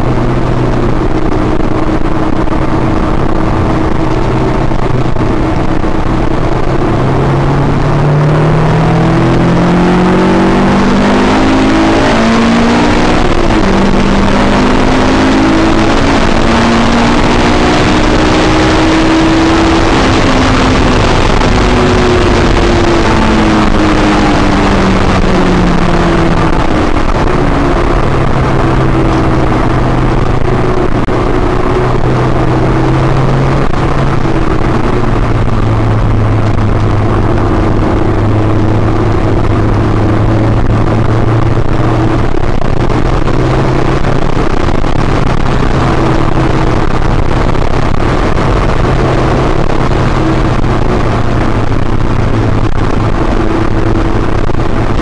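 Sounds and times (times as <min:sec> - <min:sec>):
car engine from inside cabin: 0:00.0 - 0:55.0
tyre and wind noise: 0:00.0 - 0:55.0.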